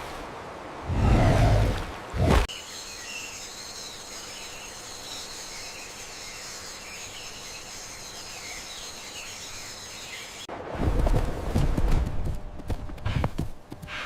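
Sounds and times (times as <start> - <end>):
high insect chorus: 2.5 - 10.4.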